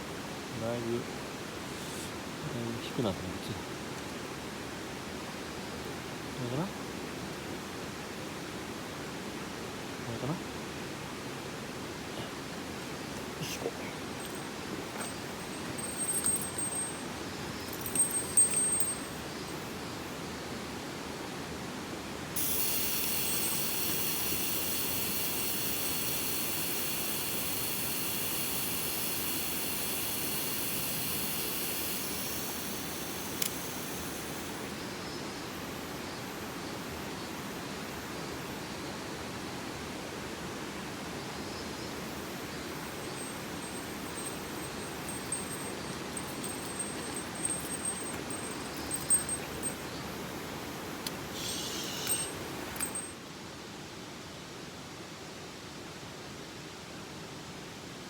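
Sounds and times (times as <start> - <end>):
high hiss: 12.2 - 20.3, 22.4 - 38.5, 41.4 - 53.1.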